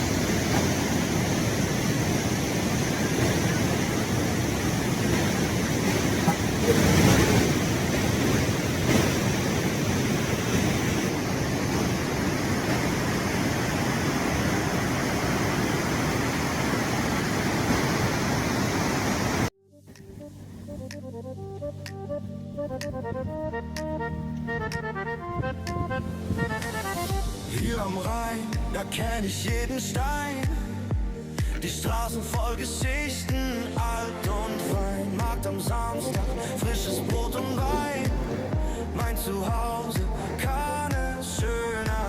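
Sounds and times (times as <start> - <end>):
waterfall roaring: 0.0 - 19.5, 31.4 - 42.0.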